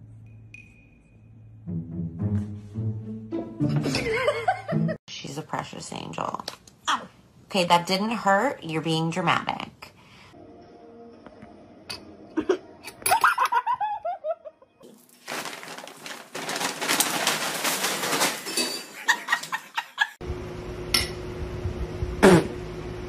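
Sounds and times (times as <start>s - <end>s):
paper bag crinkling and rustling: 14.8s - 19.1s.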